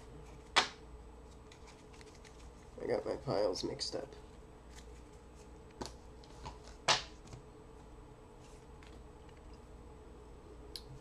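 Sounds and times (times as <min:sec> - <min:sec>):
faint steady hum: 0:00.0 - 0:11.0
card rustle: 0:01.3 - 0:02.8.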